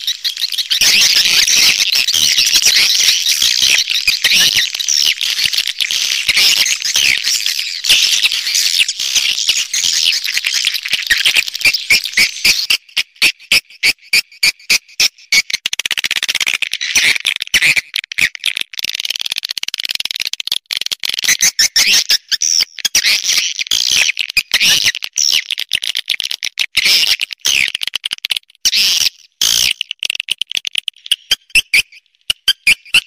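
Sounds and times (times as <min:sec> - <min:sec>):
high twittering bird chirps: 0:00.0 - 0:12.8.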